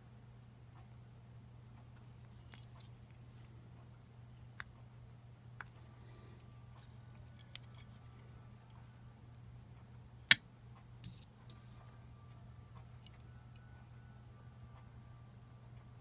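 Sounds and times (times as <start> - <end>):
steady low hum: 0.0 - 16.0
clicks of small parts handled: 2.0 - 3.2, 6.4 - 8.8.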